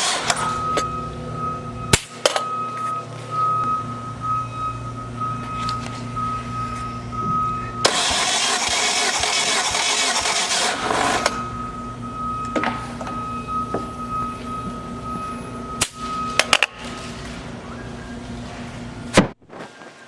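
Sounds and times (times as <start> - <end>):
engine cranked by starter: 0.0 - 2.5, 7.4 - 13.2
high-pitched hum: 0.0 - 19.2.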